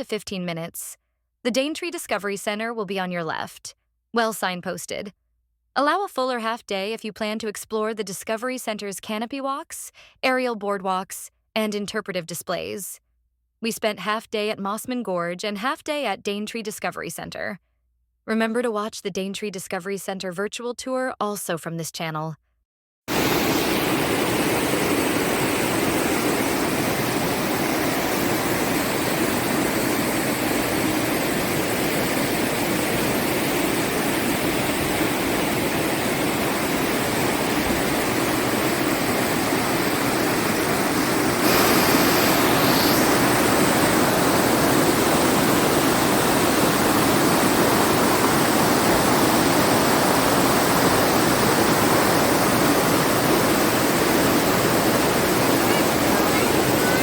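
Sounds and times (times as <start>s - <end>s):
river water rushing: 23.1s - 57.0s.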